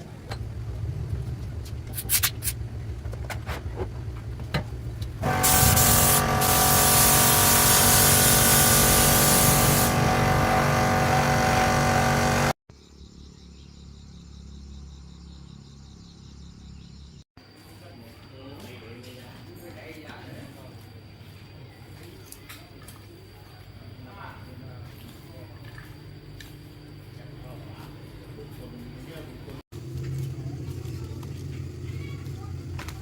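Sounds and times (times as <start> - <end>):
machine engine running: 5.2 - 12.6, 29.8 - 33.0.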